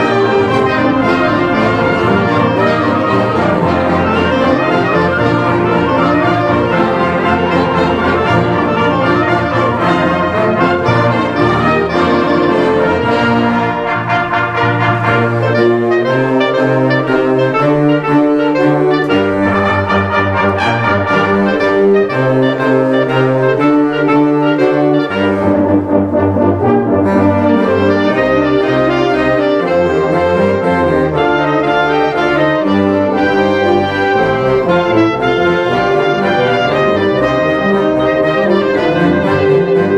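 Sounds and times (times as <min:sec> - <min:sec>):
concert band playing chords: 0:09.7 - 0:17.4.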